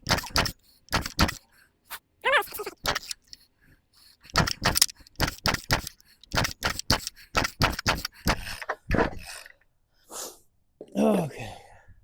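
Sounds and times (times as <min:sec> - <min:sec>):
chainsaw recoil starter pulls: 0:00.0 - 0:01.4, 0:04.2 - 0:08.3.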